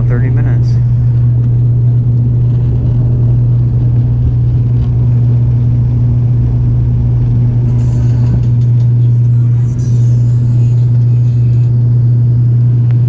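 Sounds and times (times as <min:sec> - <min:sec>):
turboprop engines droning in cabin: 0:00.0 - 0:13.0.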